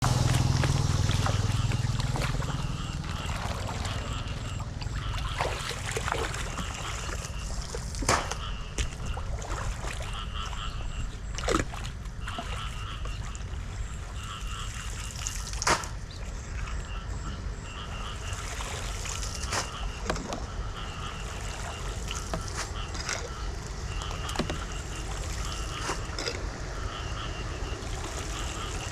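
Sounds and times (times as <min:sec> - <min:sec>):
sharp splashes or knocks: 0:00.0 - 0:10.1, 0:15.0 - 0:16.0
floodwater trickling at a drain: 0:00.0 - 0:16.9, 0:17.8 - 0:28.9.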